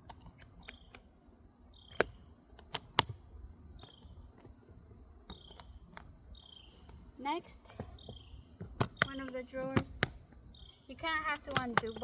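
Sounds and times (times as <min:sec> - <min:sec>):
case hardware clicking: 0:11.4 - 0:12.0.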